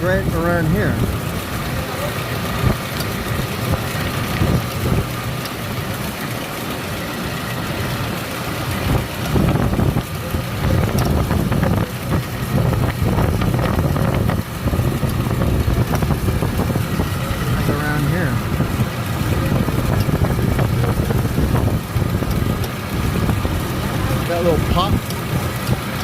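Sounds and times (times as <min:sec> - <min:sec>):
truck engine idling: 0:00.0 - 0:26.0.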